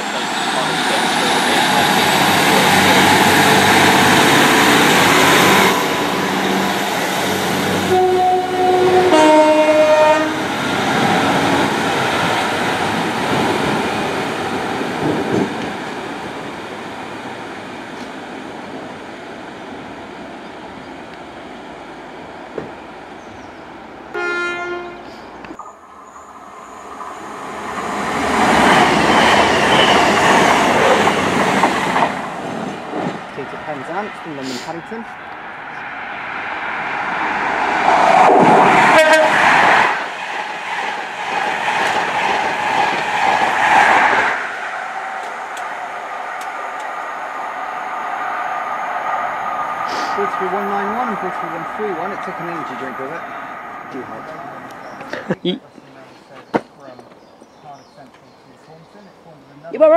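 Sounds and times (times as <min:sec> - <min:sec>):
diesel train passing: 0:00.0 - 0:55.1
short horn blast: 0:07.8 - 0:10.4, 0:24.2 - 0:25.2, 0:38.9 - 0:39.4
two-note train horn: 0:07.8 - 0:10.4, 0:24.2 - 0:25.1, 0:38.9 - 0:39.4.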